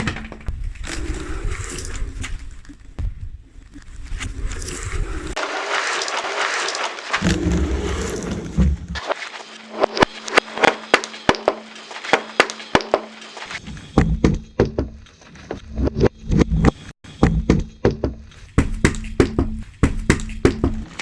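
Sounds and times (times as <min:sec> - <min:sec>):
car tyre crushing objects: 0:05.4 - 0:09.0
sharp cracks and snaps: 0:05.4 - 0:13.6
dull thuds: 0:07.2 - 0:09.0.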